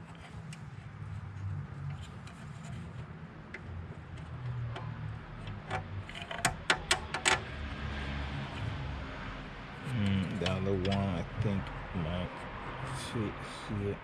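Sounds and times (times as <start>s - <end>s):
bolts and tools ticking: 1.9s - 7.6s, 10.0s - 11.8s.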